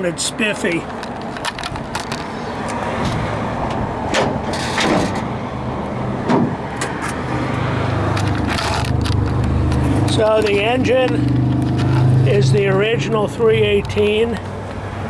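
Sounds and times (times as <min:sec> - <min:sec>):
car engine idling: 0:00.1 - 0:15.0.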